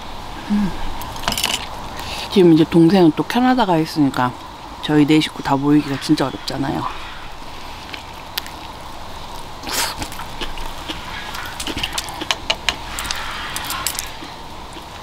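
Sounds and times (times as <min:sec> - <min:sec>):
wet chewing smacks: 0:09.6 - 0:15.0.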